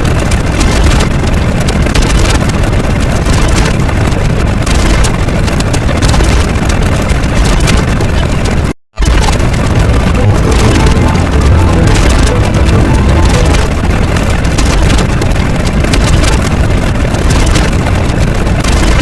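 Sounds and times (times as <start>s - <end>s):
loud low rumbling noise: 9.0s - 19.0s.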